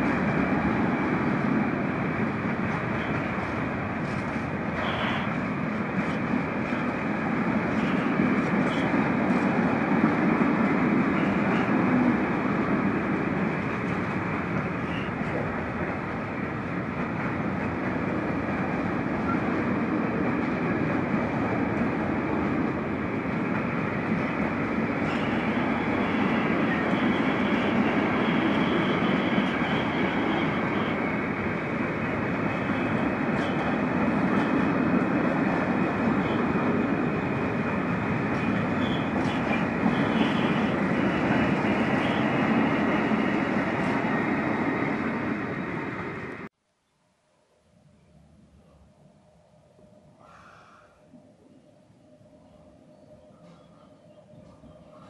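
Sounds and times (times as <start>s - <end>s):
freight train wheels rumbling: 0.0s - 46.5s
faint high-pitched squeal: 4.8s - 5.4s, 25.0s - 31.3s, 38.3s - 44.0s.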